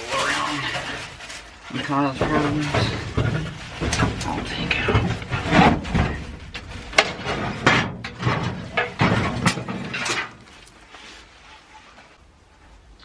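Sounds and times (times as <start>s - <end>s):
truck parts knocking and clunking: 0.9s - 10.8s.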